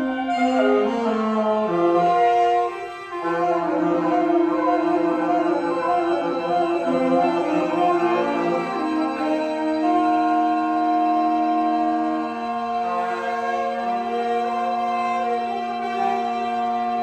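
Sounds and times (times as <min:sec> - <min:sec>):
free jazz saxophones and violin: 0:00.0 - 0:17.0.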